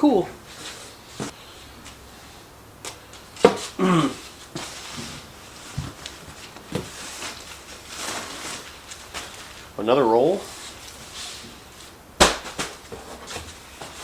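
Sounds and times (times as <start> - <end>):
cardboard rustling: 0.4 - 14.0
dull thud: 12.2 - 12.8.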